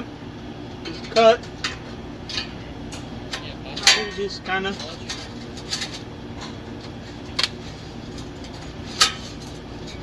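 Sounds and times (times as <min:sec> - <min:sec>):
steady low hum: 0:00.0 - 0:10.0
metallic clanks: 0:00.8 - 0:10.0.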